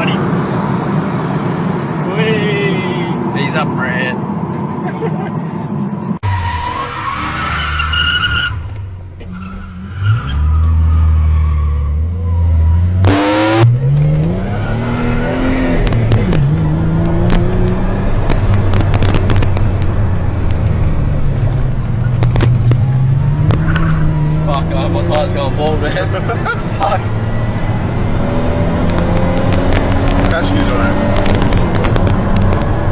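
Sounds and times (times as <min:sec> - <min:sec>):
tyres skidding and squealing: 0:05.8 - 0:32.9
car engine revving hard: 0:12.9 - 0:32.9.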